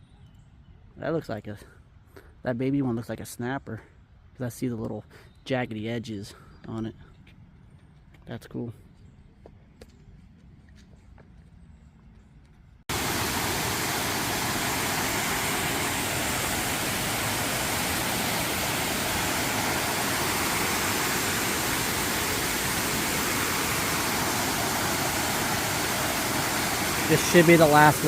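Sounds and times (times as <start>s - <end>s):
waterfall rushing: 12.9s - 28.0s.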